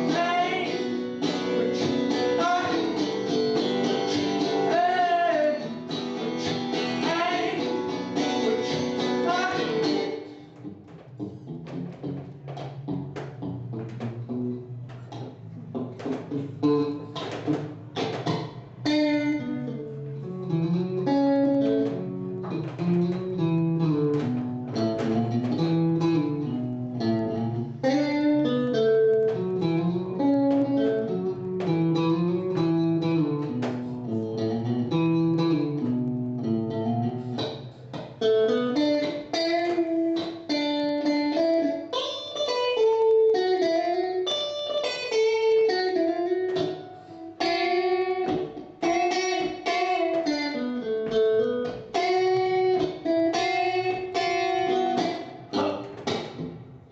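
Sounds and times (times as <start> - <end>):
guitar plucked notes: 0.0 - 56.9.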